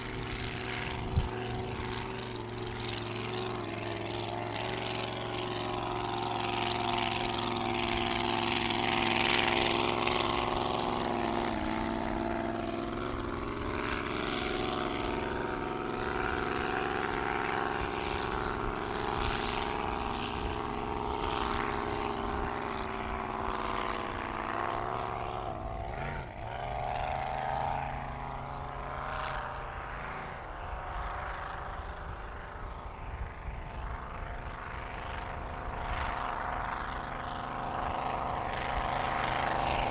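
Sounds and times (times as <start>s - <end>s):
racing boat engine running hard: 0.0s - 39.9s.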